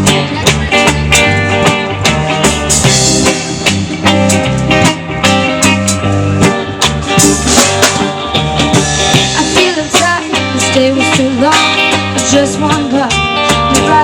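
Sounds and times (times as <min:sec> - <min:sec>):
bass guitar: 0:00.0 - 0:14.0
drum kit: 0:00.0 - 0:14.0
electric guitar: 0:00.0 - 0:14.0
person singing: 0:09.3 - 0:14.0.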